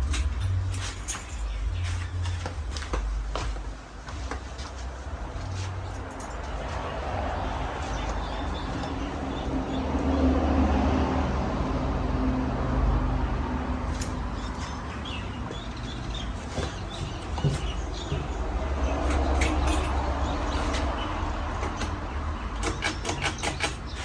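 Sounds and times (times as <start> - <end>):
sharp clicks: 21.5 - 24.0.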